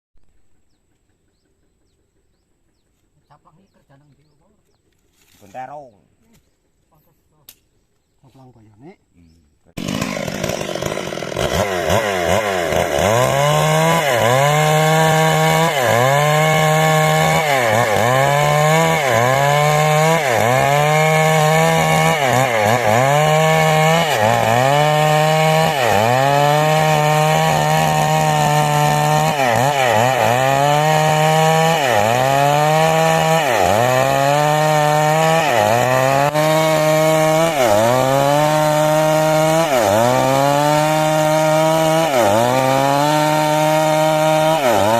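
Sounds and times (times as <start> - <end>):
chainsaw cutting wood: 9.7 - 44.9.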